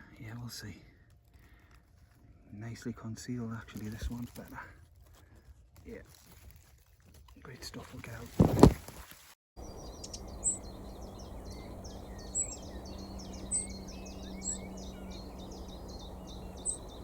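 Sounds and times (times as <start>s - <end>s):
bird high chirps: 9.6s - 17.0s.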